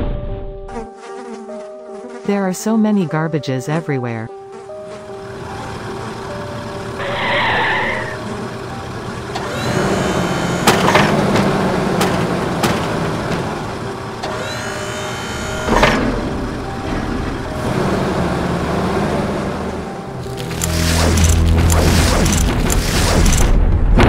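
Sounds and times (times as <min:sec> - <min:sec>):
engine hum: 0:04.3 - 0:24.0
rising mechanical whine: 0:05.0 - 0:23.8.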